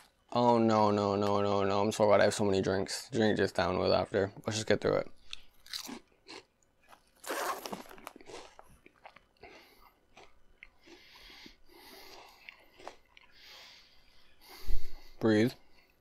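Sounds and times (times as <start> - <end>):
person crunching a crisp snack: 5.2 - 13.6.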